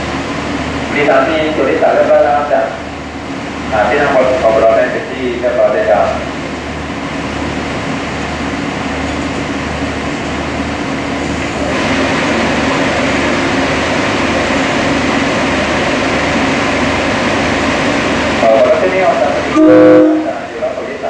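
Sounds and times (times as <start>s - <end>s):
diesel railcar running: 0.0s - 21.0s.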